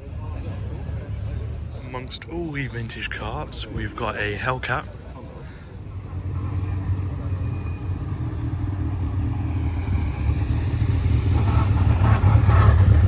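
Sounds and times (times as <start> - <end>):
car engine rumbling: 5.8 - 13.0.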